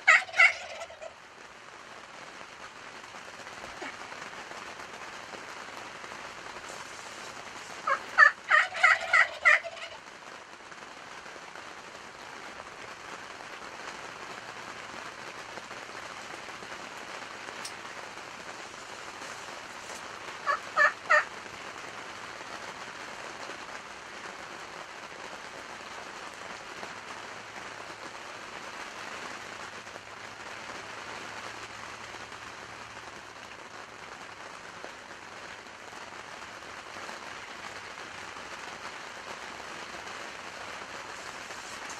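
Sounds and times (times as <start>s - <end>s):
turkeys gobbling: 0.0s - 1.2s, 7.7s - 10.0s, 19.8s - 21.3s
heavy rain: 0.0s - 41.9s.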